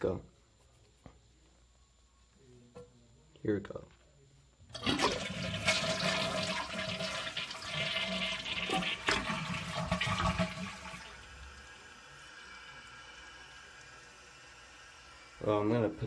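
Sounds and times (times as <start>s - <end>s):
toilet flushing: 4.7s - 16.0s
toilet tank refilling hiss: 4.7s - 16.0s.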